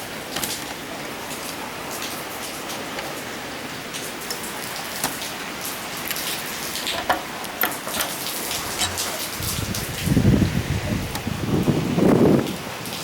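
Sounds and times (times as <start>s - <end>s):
rain falling on a surface: 0.0s - 13.0s.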